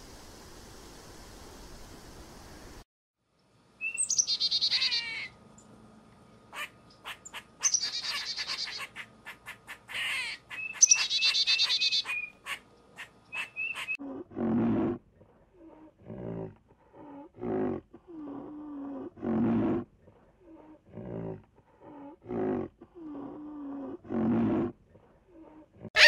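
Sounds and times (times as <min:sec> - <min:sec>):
songbird trilling: 0:03.8 - 0:05.3, 0:06.6 - 0:09.1, 0:10.0 - 0:14.0.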